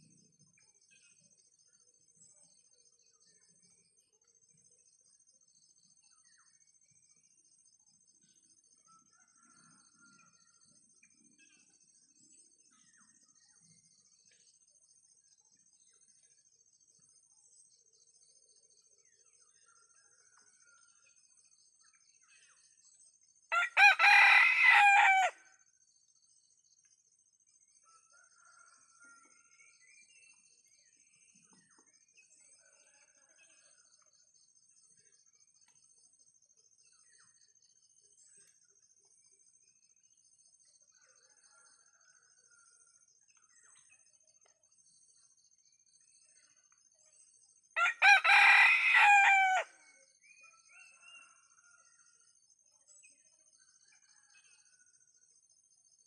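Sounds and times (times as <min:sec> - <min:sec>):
faint chicken calls: 0:23.5 - 0:25.5, 0:47.8 - 0:49.9
rooster crowing: 0:23.5 - 0:25.5, 0:47.8 - 0:49.8.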